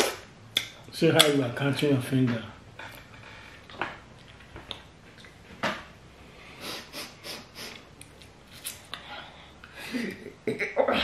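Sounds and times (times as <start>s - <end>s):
person chewing: 2.9s - 5.4s.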